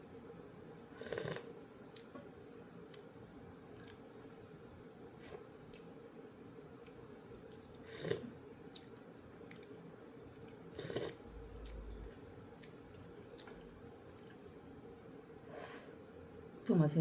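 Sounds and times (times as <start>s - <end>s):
steady low hum: 0.0s - 17.0s
chewing and mouth noises: 8.1s - 14.5s.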